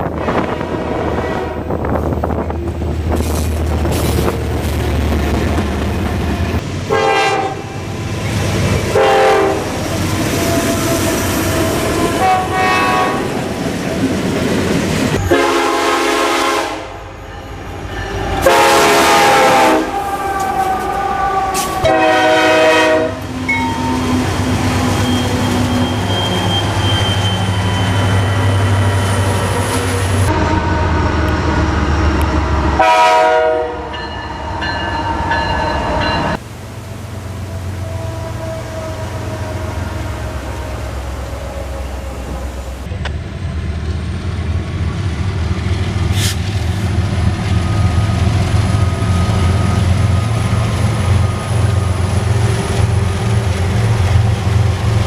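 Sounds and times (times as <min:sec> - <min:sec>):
train air horn blasts: 0:00.1 - 0:01.8, 0:06.9 - 0:07.8, 0:08.9 - 0:13.4, 0:15.2 - 0:17.2, 0:18.2 - 0:24.1, 0:30.2 - 0:31.3, 0:32.8 - 0:34.0, 0:37.6 - 0:42.9.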